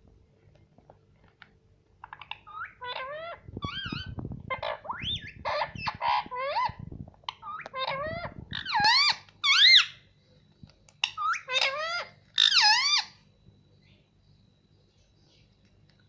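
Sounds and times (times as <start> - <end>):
parrot squawking: 2.0 - 10.0, 11.0 - 13.2.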